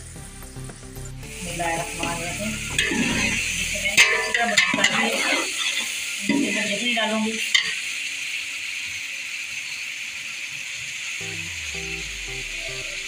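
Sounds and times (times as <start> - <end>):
meat sizzling in a pot: 0.0 - 11.2
metal spoon scraping pot: 2.8 - 3.4.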